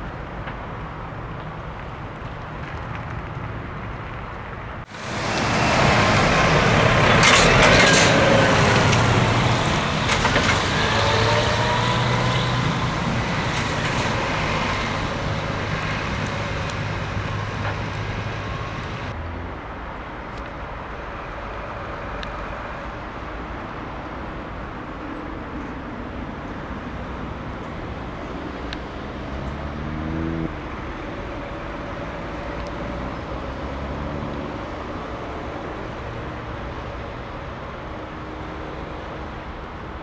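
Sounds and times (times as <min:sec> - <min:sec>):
road rumble: 0:00.0 - 0:40.0
truck engine drone with whining tones: 0:04.9 - 0:19.2.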